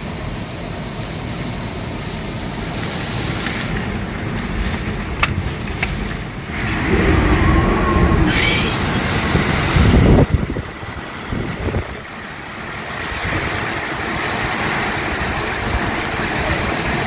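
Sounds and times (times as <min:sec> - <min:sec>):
rain rushing: 0:00.0 - 0:17.0
wind buffeting microphone: 0:05.2 - 0:12.2
wavering pitched hum: 0:06.5 - 0:09.7.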